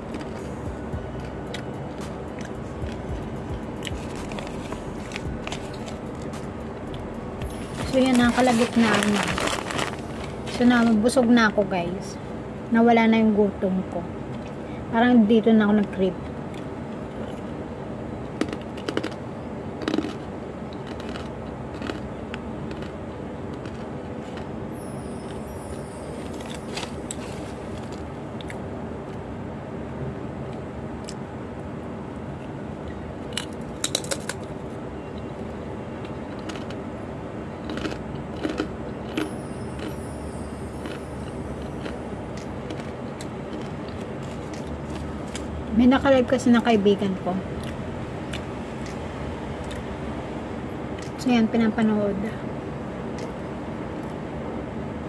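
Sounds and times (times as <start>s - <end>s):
steady background hum: 0.0s - 55.0s
crackers being crunched: 3.8s - 11.0s, 19.8s - 24.5s, 33.2s - 34.6s, 36.0s - 36.8s, 37.6s - 39.9s, 40.8s - 45.6s.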